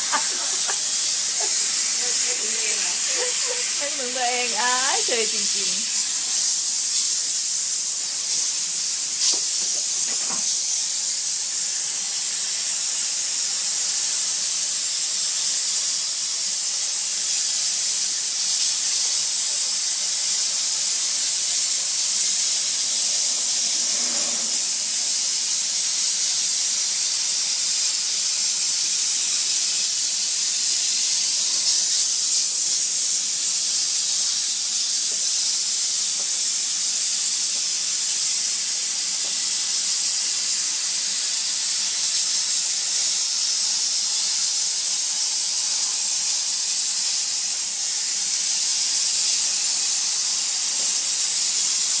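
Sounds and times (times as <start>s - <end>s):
sprayer nozzle hissing: 0.0s - 7.2s, 7.9s - 10.8s.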